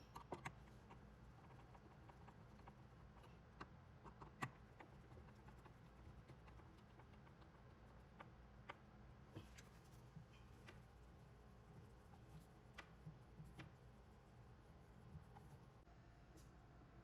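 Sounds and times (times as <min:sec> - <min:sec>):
low steady hum: 0:00.0 - 0:17.0
light clicks and taps: 0:11.7 - 0:14.2.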